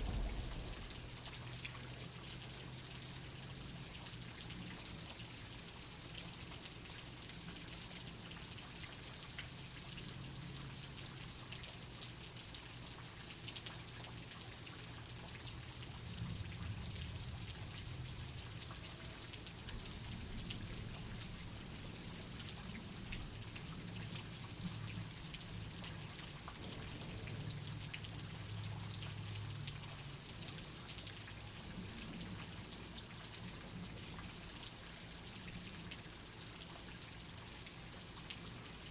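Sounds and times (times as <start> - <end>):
low rumble: 0.0 - 1.6
raindrops ticking: 0.0 - 1.8
steady rain: 0.0 - 38.9.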